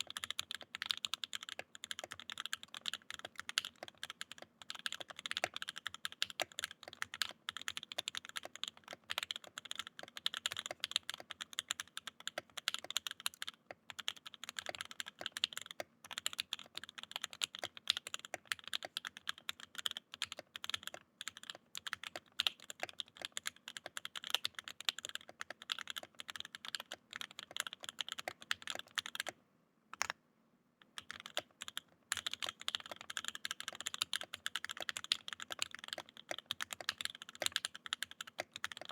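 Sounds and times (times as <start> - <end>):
fast mechanical keyboard typing: 0.0 - 29.4, 31.0 - 38.9.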